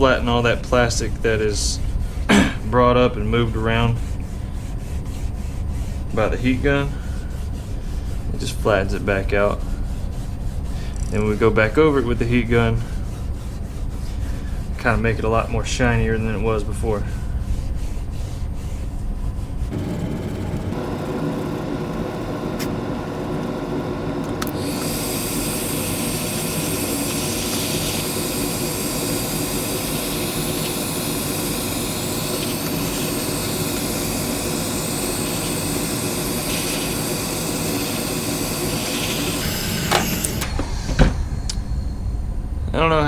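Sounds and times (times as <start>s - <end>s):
heat gun blowing: 19.7s - 41.0s.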